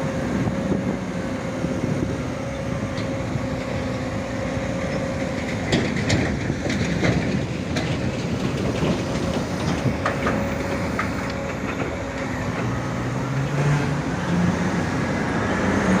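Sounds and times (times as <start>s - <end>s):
excavator engine rumbling: 0.0s - 16.0s
metallic clanks and knocks: 4.9s - 12.8s.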